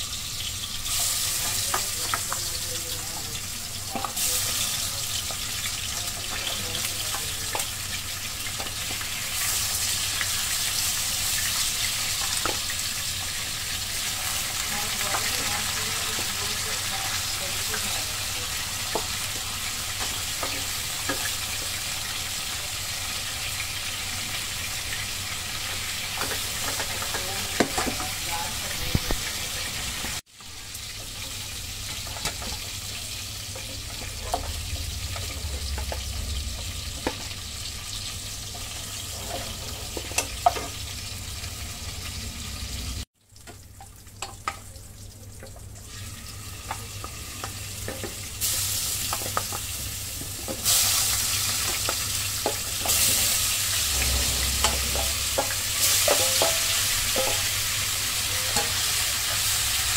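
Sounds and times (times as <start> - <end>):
hot oil sizzling: 0.0 - 59.9
spatula scraping a pan: 38.6 - 40.7, 52.4 - 59.6.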